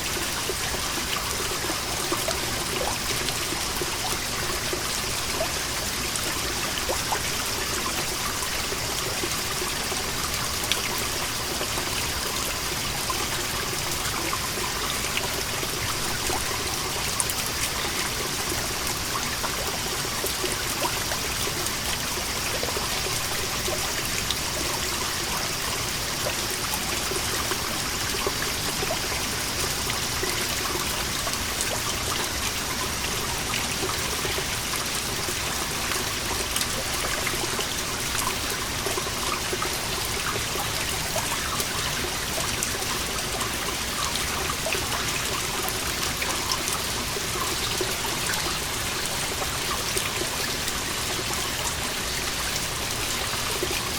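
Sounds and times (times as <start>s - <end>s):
water trickling and dripping: 0.0s - 53.9s.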